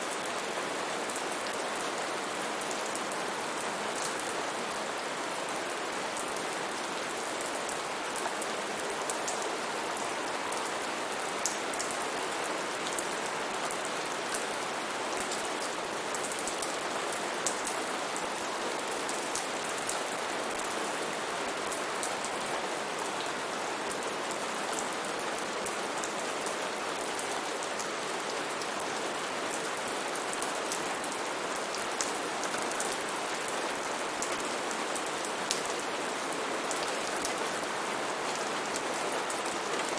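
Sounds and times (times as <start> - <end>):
rain pattering on leaves: 0.0 - 39.9.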